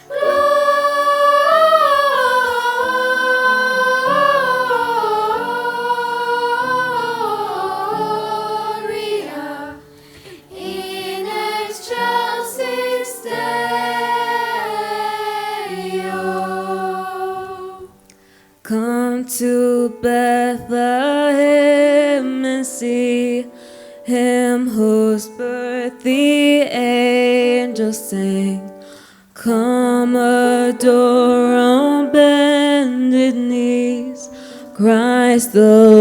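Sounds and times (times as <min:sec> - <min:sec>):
choir singing in harmony: 0:00.0 - 0:18.0.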